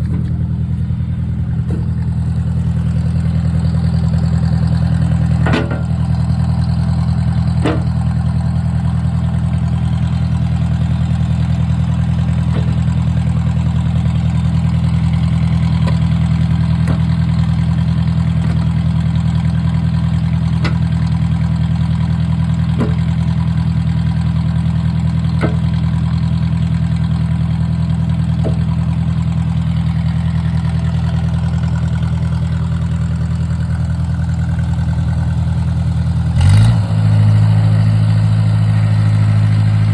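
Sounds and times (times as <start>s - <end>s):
sharp engine knocks: 0.0s - 8.8s, 9.5s - 30.9s
tractor engine running: 0.0s - 39.9s.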